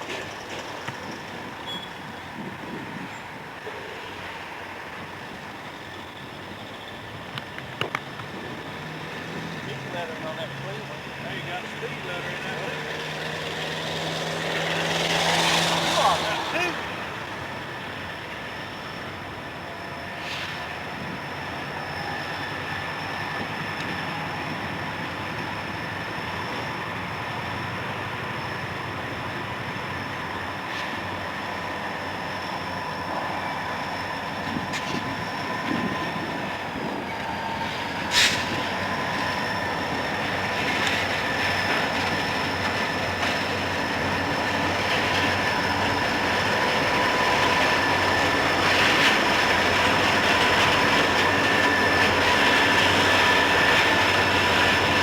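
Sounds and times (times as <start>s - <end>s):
train rolling on rails: 0.0s - 55.0s
high-pitched wheel squeal: 1.6s - 2.3s.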